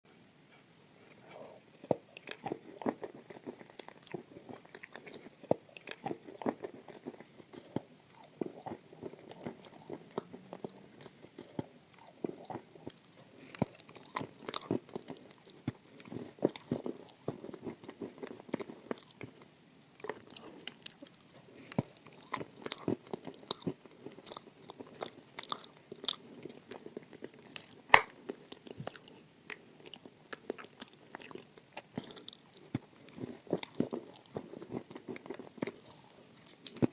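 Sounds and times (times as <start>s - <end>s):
chewing crunchy food: 1.0s - 36.9s.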